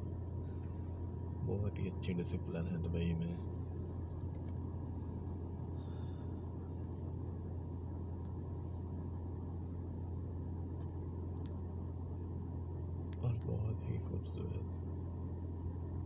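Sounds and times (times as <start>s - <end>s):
car engine rumble from cabin: 0.0s - 16.0s
faint clicks: 4.2s - 5.0s, 10.8s - 11.7s.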